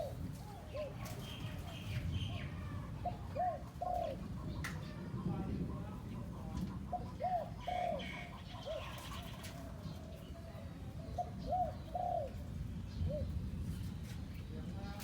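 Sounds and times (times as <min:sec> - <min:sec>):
dove calling: 0:00.0 - 0:04.9, 0:06.0 - 0:09.8, 0:11.0 - 0:13.4.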